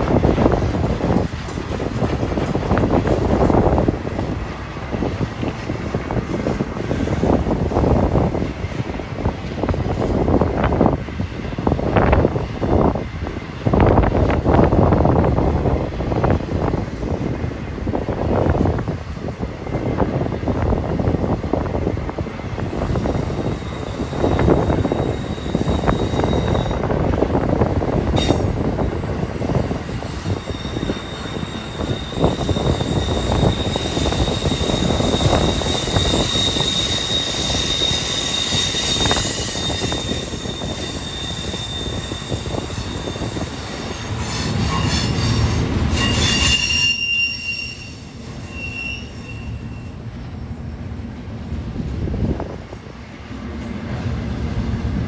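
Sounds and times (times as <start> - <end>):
rumble of freight cars: 0.0 - 55.0
wind noise on microphone: 0.0 - 55.0
train wheels squealing: 22.6 - 50.0.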